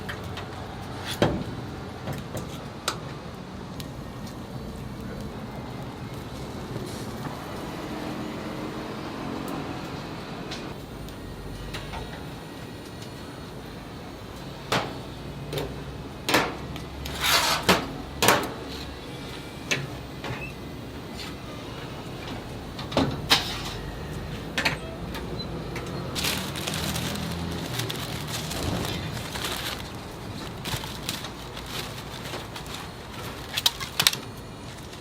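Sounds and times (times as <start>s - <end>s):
steady background noise: 0.0s - 35.0s
utensils and containers clattering: 16.3s - 18.9s.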